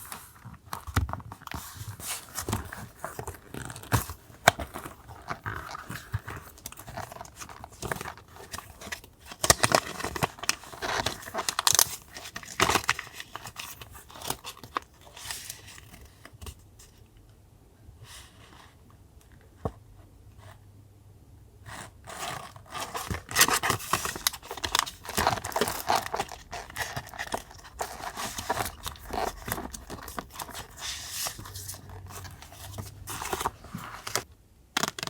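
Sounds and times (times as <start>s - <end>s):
paper rustling and tearing: 22.2s - 34.3s.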